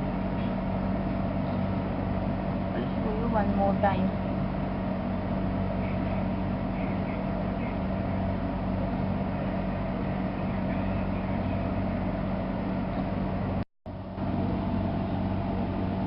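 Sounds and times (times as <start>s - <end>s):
fan hum and hiss: 0.0s - 16.0s.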